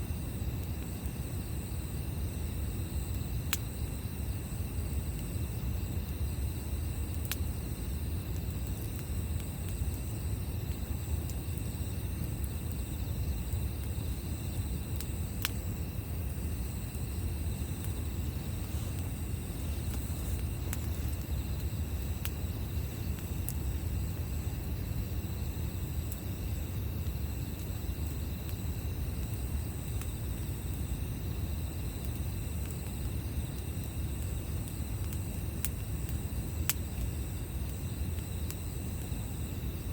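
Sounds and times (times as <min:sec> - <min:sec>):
campfire crackling: 0:00.0 - 0:39.9
insects chirring: 0:00.0 - 0:39.9.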